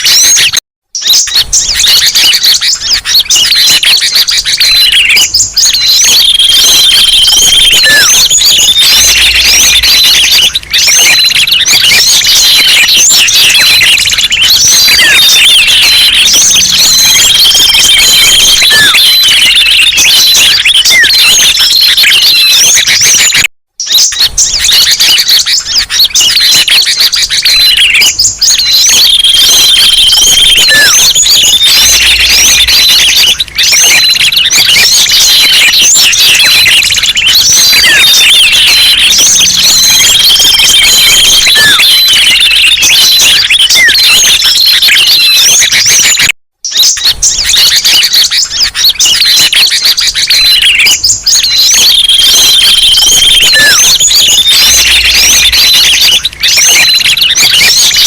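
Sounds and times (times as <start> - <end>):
songbirds chirping chorus: 0.0 - 46.1
falling bird call: 0.0 - 58.0
held whistle: 0.0 - 58.0.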